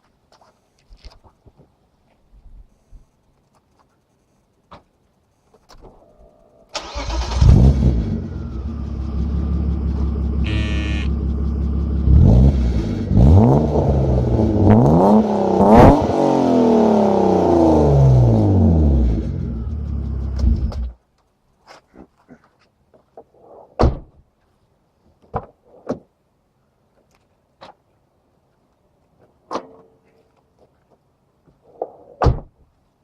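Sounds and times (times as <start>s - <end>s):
car engine cranking and starting: 6.7s - 14.6s
car engine idling and revving: 6.9s - 21.0s.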